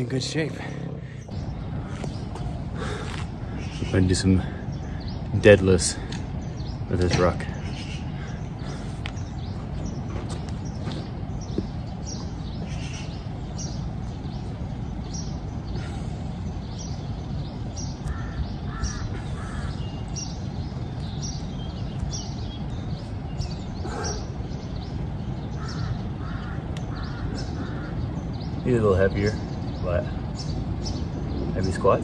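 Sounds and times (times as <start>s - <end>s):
steady low rumble: 0.0s - 32.0s
short bird calls: 0.8s - 5.3s, 5.9s - 28.6s
quick bird chirps: 6.0s - 28.6s.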